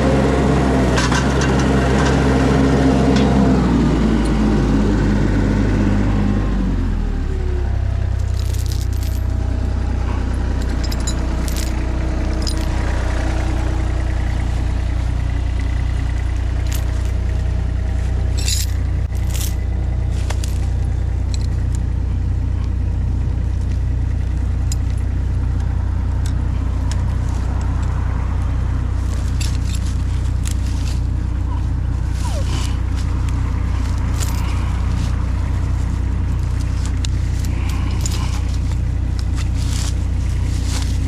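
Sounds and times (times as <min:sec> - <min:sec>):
skid steer engine running: 0:00.0 - 0:41.0
metallic clinks and rattles: 0:08.1 - 0:13.6, 0:16.3 - 0:17.6, 0:18.2 - 0:21.9, 0:23.6 - 0:28.0, 0:28.8 - 0:41.0.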